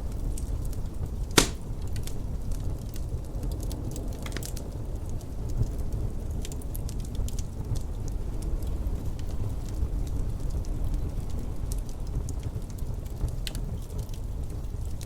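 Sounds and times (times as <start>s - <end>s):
wood fire crackling: 0.0s - 15.0s
loud sharp pop: 1.4s - 1.6s.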